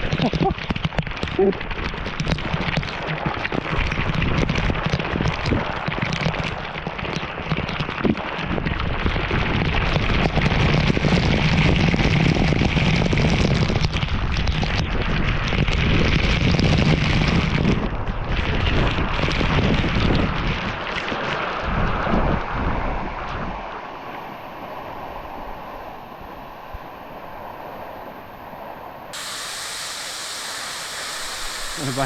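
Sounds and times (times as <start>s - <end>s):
waterfall rushing and splashing: 29.2s - 32.0s.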